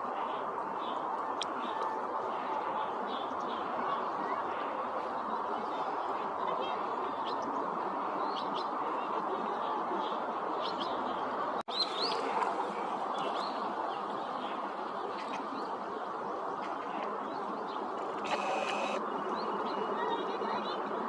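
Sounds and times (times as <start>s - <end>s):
birds chirping: 16.6s - 19.8s.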